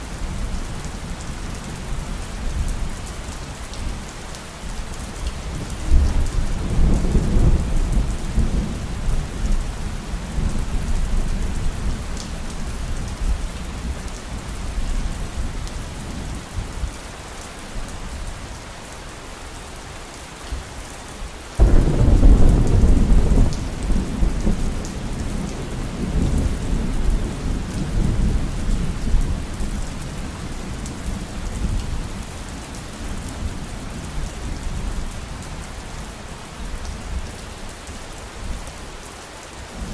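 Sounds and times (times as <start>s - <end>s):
heavy rain: 0.0s - 39.9s
rolling thunder: 21.6s - 29.5s.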